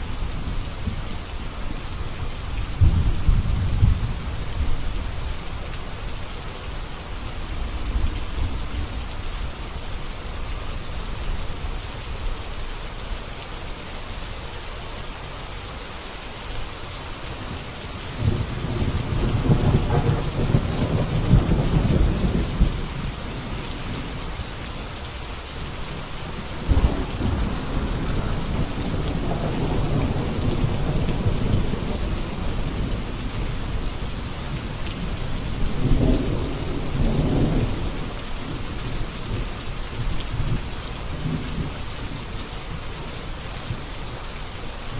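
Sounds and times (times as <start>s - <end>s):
steady rain falling: 0.0s - 44.9s
thunder rolling: 17.4s - 24.2s, 25.5s - 34.6s.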